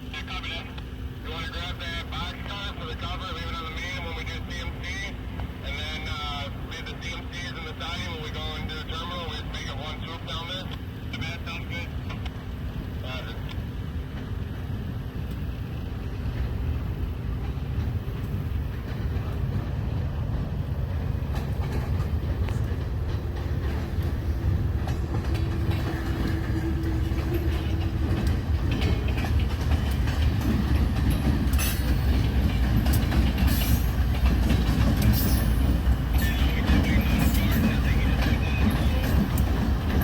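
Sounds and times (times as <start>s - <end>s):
freight train rumble: 0.0s - 40.0s
wheels clicking over rail joints: 16.1s - 40.0s.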